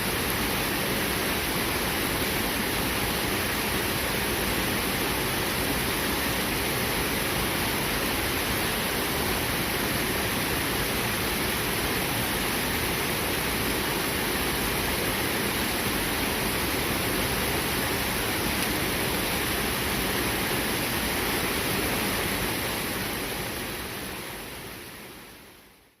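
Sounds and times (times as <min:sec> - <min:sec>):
river rushing over rocks: 0:00.0 - 0:25.8.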